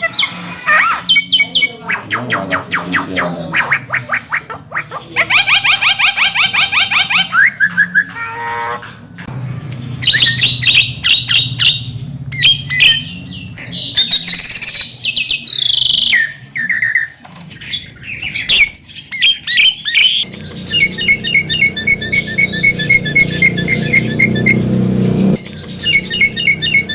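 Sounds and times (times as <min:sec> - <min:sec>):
myna bird chattering: 0:00.0 - 0:08.5, 0:17.7 - 0:26.9.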